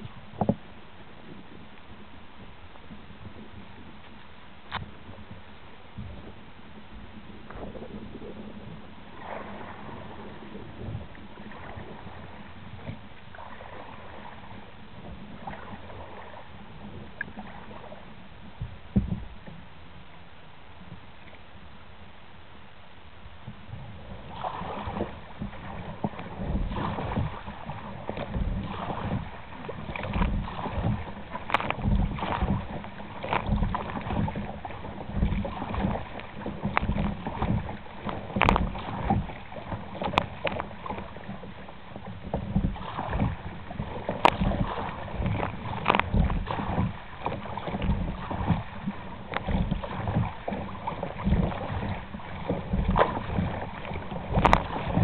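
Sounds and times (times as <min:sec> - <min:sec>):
paddle splashing in water: 0:07.0 - 0:19.7, 0:23.4 - 0:55.0
wind buffeting microphone: 0:23.4 - 0:55.0.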